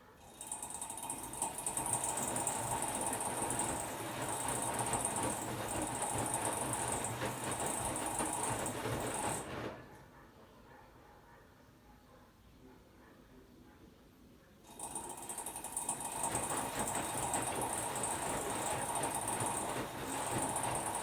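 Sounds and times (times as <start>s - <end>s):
washer-dryer motor turning drum: 0.2s - 10.0s, 14.6s - 21.0s.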